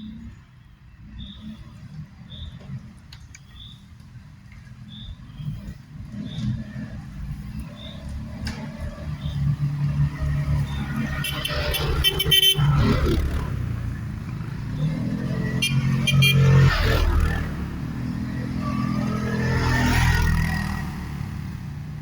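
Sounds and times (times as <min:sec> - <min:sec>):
atv engine revving: 0:04.9 - 0:22.0.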